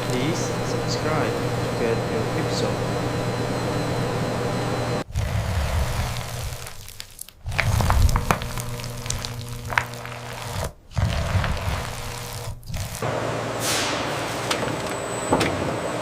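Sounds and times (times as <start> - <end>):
factory machinery humming: 0.0 - 5.1, 11.3 - 16.0.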